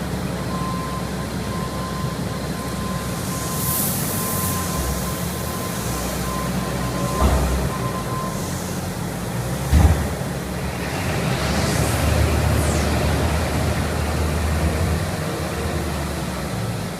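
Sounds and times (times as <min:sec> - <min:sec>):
truck engine rumbling: 0:00.0 - 0:16.9
high hiss: 0:03.0 - 0:06.9, 0:10.4 - 0:16.0.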